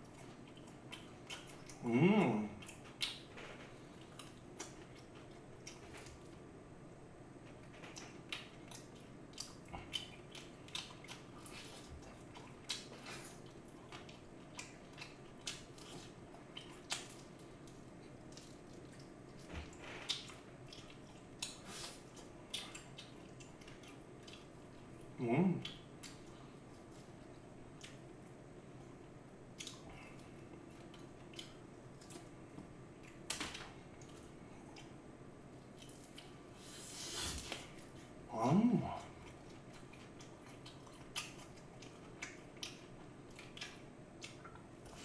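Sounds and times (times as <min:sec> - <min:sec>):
wet mouth clicks and crunches: 0:12.4 - 0:19.4.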